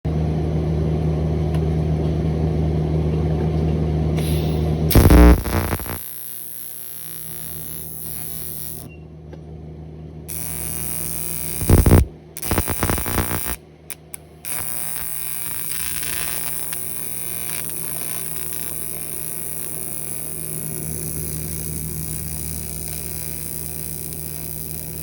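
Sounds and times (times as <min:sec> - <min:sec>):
loud welding arc burst: 0:04.2 - 0:08.9, 0:10.3 - 0:25.0
welding arc buzzing: 0:04.2 - 0:08.9, 0:10.3 - 0:25.0.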